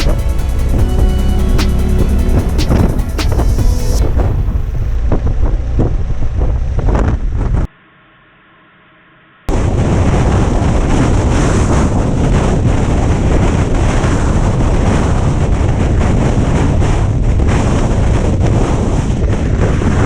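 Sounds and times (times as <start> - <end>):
wind buffeting microphone: 9.5 - 20.0.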